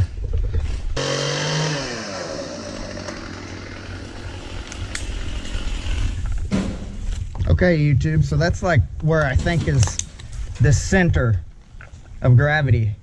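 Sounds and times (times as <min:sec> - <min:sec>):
chainsaw engine revving: 0:01.0 - 0:06.2.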